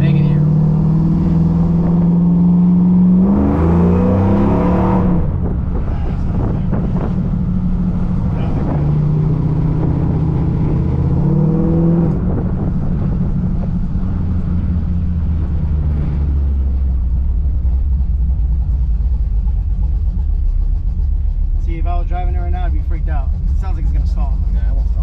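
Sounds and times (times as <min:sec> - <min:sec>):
car engine idling roughly: 0:05.4 - 0:10.0, 0:13.0 - 0:25.0.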